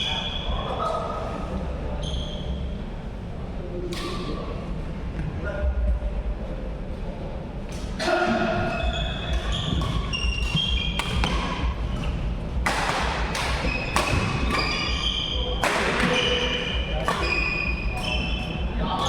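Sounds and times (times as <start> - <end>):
shoes squeaking on court: 8.6 - 12.3, 13.3 - 19.0
rackets hitting shuttlecock: 9.3 - 19.0.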